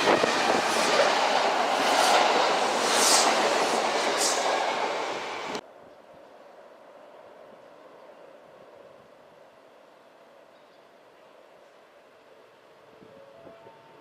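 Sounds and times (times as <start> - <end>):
electric train passing: 0.0 - 5.6.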